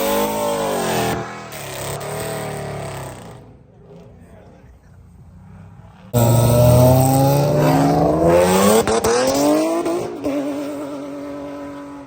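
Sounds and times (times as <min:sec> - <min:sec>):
car engine accelerating hard: 0:05.6 - 0:12.0.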